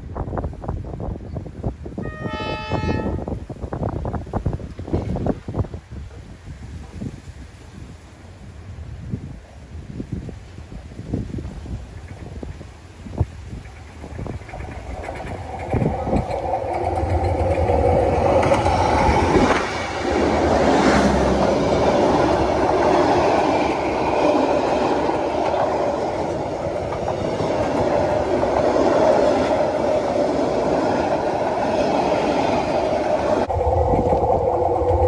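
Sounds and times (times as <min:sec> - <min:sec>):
train wheels clattering on rails: 0:11.5 - 0:35.0
locomotive engine rumbling: 0:13.2 - 0:35.0.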